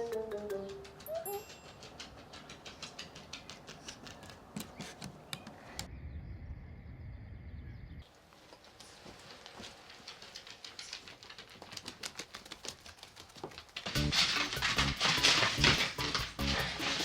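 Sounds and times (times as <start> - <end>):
puppy claws pattering on floor: 0.5 - 5.9, 8.2 - 17.0.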